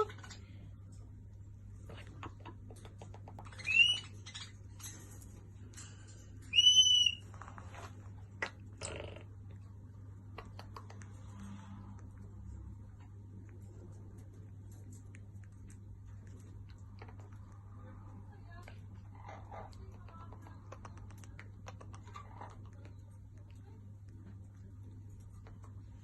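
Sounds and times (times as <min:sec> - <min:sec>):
parrot whistled calls: 0:03.5 - 0:04.5, 0:06.5 - 0:07.2.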